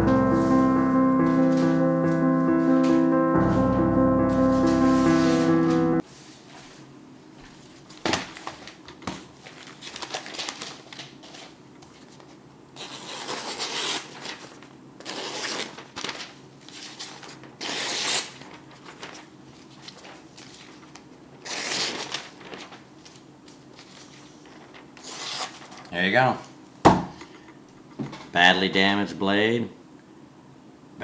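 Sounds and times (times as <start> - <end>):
piano music: 0.0 - 6.0
rustling and crinkling: 4.5 - 12.4, 13.9 - 17.6, 18.2 - 26.0.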